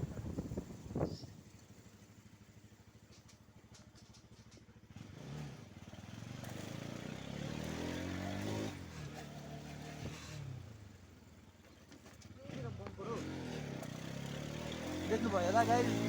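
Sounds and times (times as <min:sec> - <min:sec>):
wind rush on microphone: 0:00.0 - 0:01.4
motorcycle engine revving: 0:00.0 - 0:16.0.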